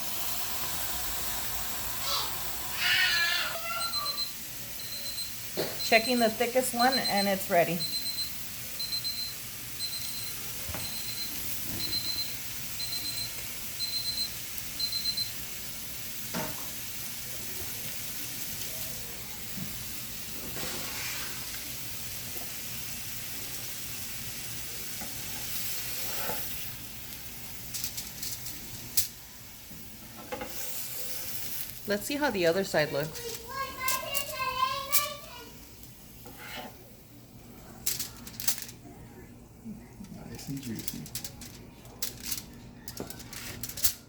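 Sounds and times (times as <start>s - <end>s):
chicken sizzling on a grill: 0.0s - 38.8s, 40.2s - 44.0s
thermometer high beeps: 3.8s - 15.3s.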